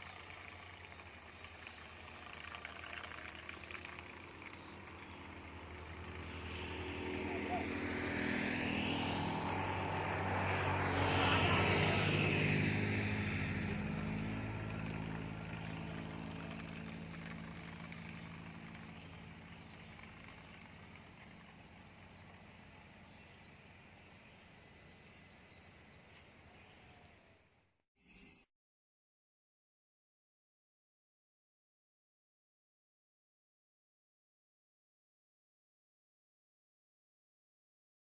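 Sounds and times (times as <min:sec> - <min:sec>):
engine passing by: 0:00.0 - 0:27.4.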